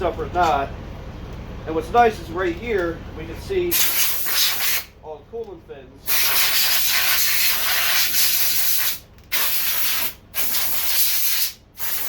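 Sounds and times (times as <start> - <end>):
pressurised spray hissing: 3.7 - 4.9, 6.1 - 12.0.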